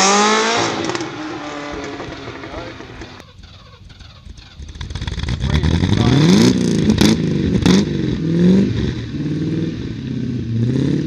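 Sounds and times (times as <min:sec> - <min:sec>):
car engine revving: 0:00.0 - 0:11.0
exhaust cracks: 0:00.0 - 0:11.0.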